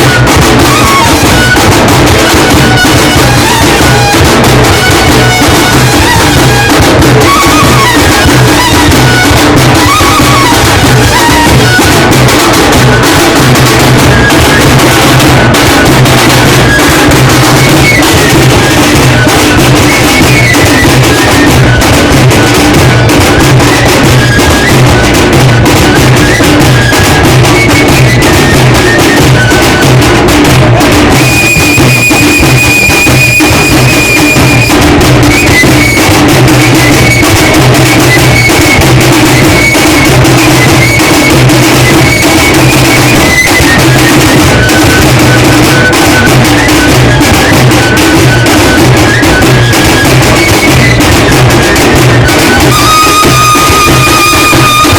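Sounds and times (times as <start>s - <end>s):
low drumbeat: 0.0s - 33.7s
high melody line: 38.3s - 54.9s.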